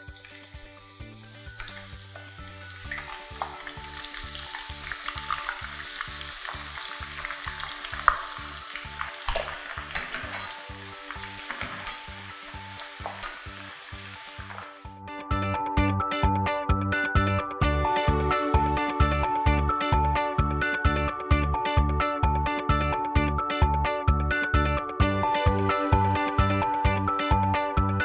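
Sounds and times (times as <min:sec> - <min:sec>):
shallots sizzling in oil: 0:00.0 - 0:15.0
soft background music: 0:00.0 - 0:28.0.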